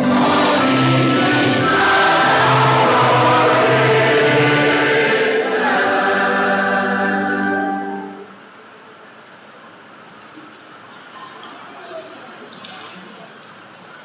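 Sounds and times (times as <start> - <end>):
choir singing: 0.0 - 8.4.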